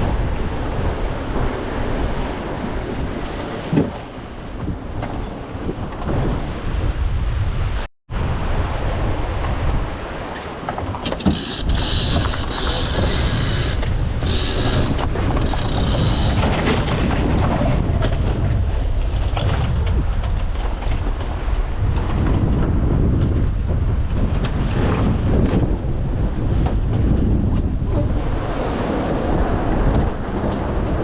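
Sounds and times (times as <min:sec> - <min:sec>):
wind rumble: 0:00.0 - 0:31.0
winch ratcheting: 0:10.7 - 0:16.6.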